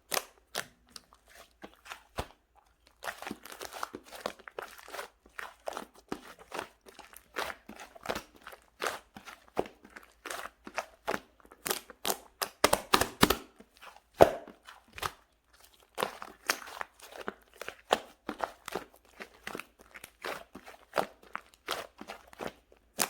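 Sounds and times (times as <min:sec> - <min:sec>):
slime popping and crackling: 0:05.6 - 0:13.5, 0:15.8 - 0:23.0.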